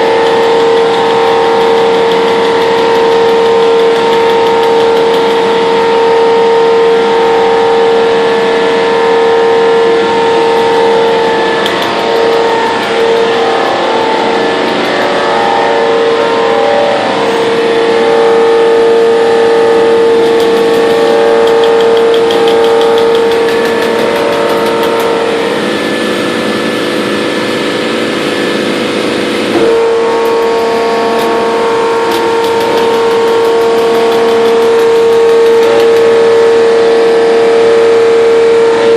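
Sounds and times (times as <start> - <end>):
rapid punching clicks: 0.0 - 5.8, 10.3 - 15.2, 19.8 - 25.5, 29.7 - 36.3
high-pitched machine whine: 0.0 - 38.9.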